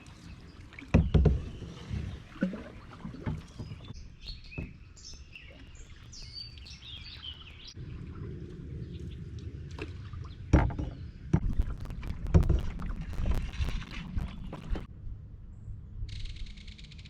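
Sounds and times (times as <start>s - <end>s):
birds chirping: 0.0s - 14.9s
paddle strokes through water: 0.0s - 14.9s
paddle knocking against hull: 0.9s - 4.9s, 10.5s - 14.8s.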